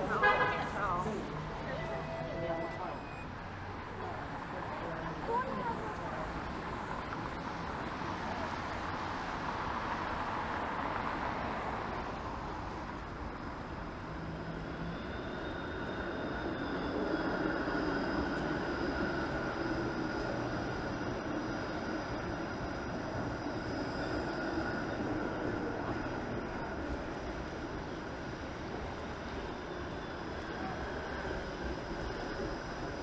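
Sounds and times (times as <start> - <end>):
traffic on wet street: 0.0 - 33.0.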